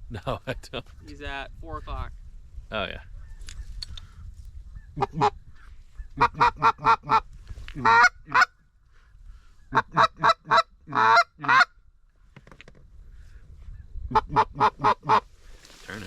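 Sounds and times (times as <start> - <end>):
duck call quacks: 7.8 - 8.5, 9.7 - 11.7.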